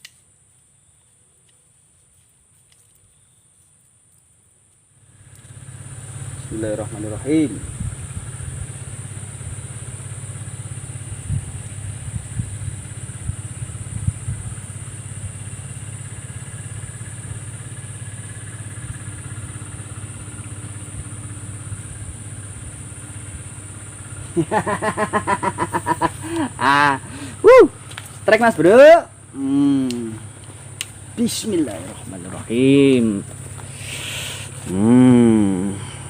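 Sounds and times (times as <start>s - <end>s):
high-pitched insect drone: 4.9s - 36.0s
pulsed calls: 23.7s - 36.0s.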